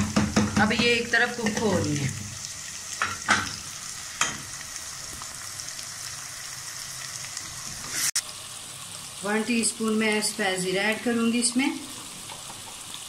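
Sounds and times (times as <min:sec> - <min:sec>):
utensil knocking: 0:00.0 - 0:01.8
food sizzling in oil: 0:00.0 - 0:13.0.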